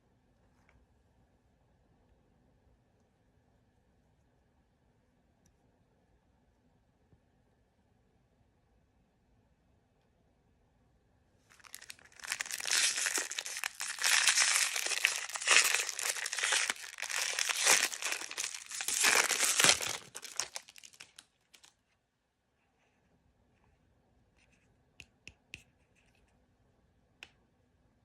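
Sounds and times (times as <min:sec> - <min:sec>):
plastic packaging crinkling and tearing: 0:11.5 - 0:21.7.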